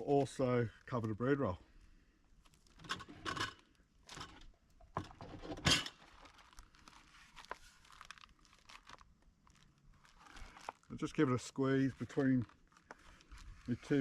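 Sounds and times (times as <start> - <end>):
plastic wrap crinkling: 5.9 - 14.0.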